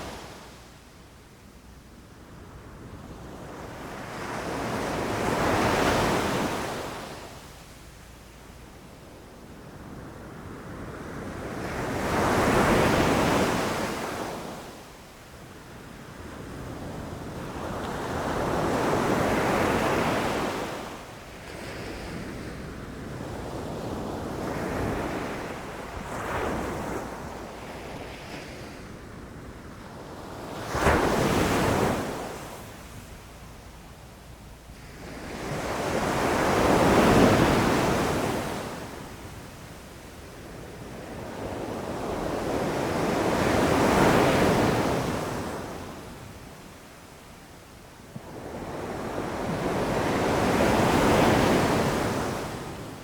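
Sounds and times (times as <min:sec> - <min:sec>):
ocean waves breaking on shore: 0:16.3 - 0:33.5, 0:34.6 - 0:39.5, 0:48.2 - 0:53.0.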